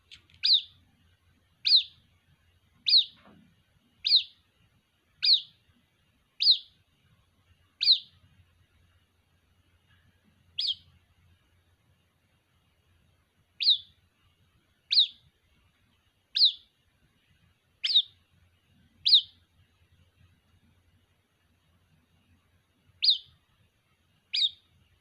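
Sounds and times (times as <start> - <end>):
bird chick peeping: 0.0 - 0.8, 1.6 - 2.1, 2.8 - 3.4, 4.0 - 4.5, 5.1 - 5.7, 6.4 - 6.9, 7.7 - 8.2, 10.4 - 11.1, 13.5 - 14.1, 14.8 - 15.4, 16.3 - 16.8, 17.8 - 19.6, 22.9 - 23.5, 24.2 - 24.8.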